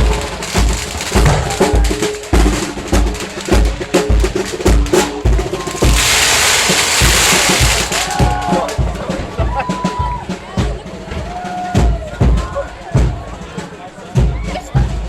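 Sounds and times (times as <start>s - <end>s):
loud rushing hiss: 0.0s - 9.0s
bass drum beating: 0.0s - 15.0s
marching band tune: 0.0s - 15.0s
snare drum strokes: 0.0s - 15.0s.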